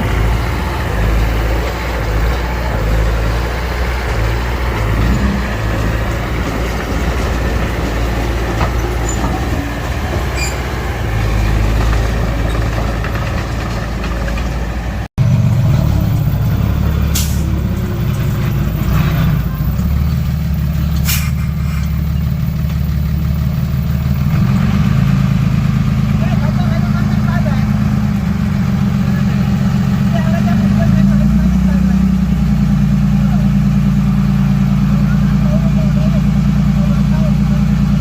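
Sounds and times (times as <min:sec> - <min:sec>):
heavy diesel machinery running: 0:00.0 - 0:38.0
short hisses: 0:21.0 - 0:21.8.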